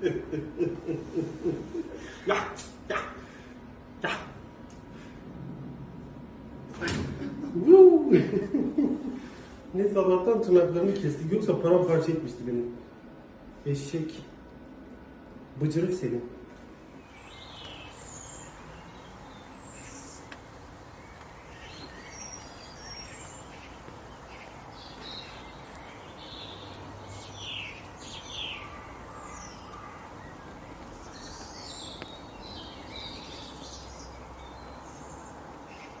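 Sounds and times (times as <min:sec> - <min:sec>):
background noise: 0:00.0 - 0:36.0
birds chirping: 0:16.8 - 0:36.0.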